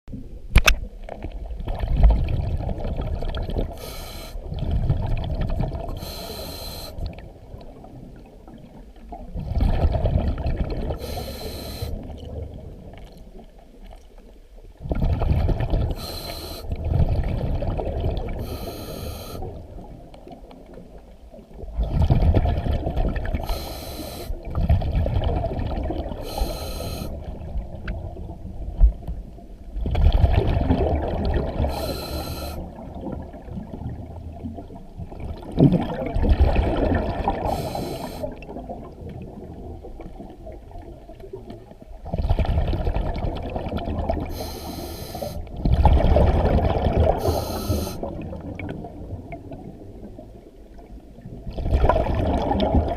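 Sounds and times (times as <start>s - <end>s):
regulator hiss on inhale: 3.7s - 4.5s, 6.0s - 7.2s, 11.0s - 12.1s, 15.9s - 16.8s, 18.4s - 19.6s, 23.4s - 24.5s, 26.2s - 27.2s, 31.6s - 32.7s, 37.4s - 38.4s, 44.3s - 45.5s, 47.2s - 48.1s
exhaust bubbles: 9.2s - 11.0s, 24.3s - 26.5s, 29.8s - 32.0s, 32.6s - 40.5s, 45.5s - 49.7s, 51.3s - 52.9s.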